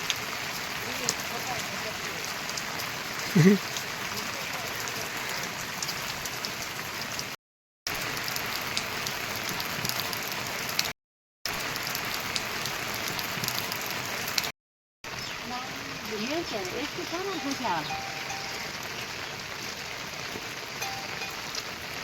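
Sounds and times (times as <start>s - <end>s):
steady rain falling: 0.0s - 10.9s, 11.5s - 22.0s.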